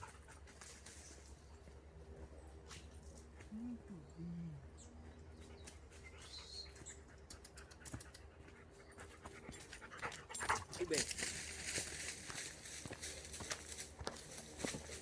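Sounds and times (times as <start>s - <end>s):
bird calls: 4.0s - 7.7s.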